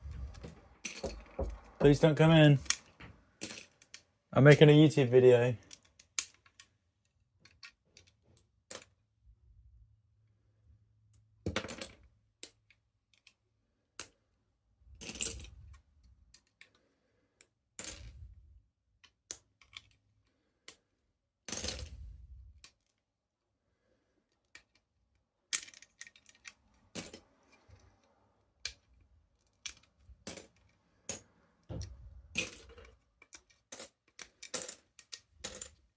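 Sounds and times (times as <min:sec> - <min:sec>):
plastic pieces clicking: 0:19.0 - 0:20.0, 0:25.5 - 0:27.9, 0:28.6 - 0:35.9
plastic pieces rattling: 0:32.3 - 0:35.9.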